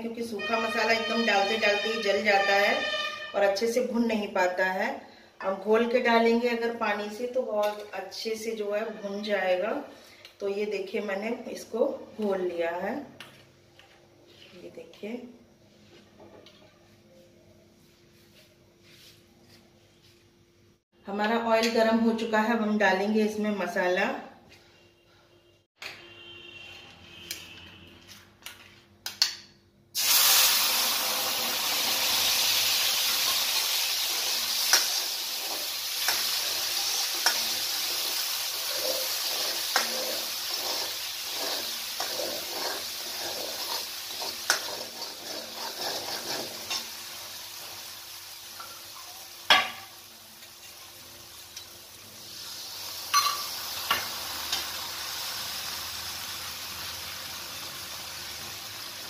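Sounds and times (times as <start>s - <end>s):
paste sizzling in hot oil: 30.0s - 59.0s
metal ladle scraping pan: 34.0s - 47.0s.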